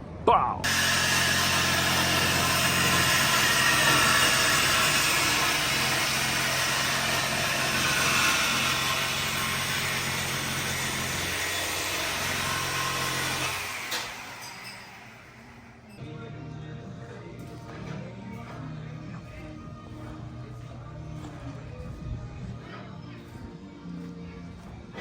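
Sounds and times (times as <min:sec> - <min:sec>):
machine humming and hissing: 0:00.7 - 0:14.4.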